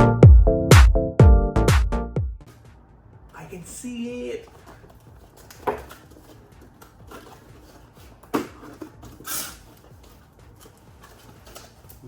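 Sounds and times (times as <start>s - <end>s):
faint fumbling noises: 4.4s - 12.0s
packaging rustle: 4.4s - 12.0s.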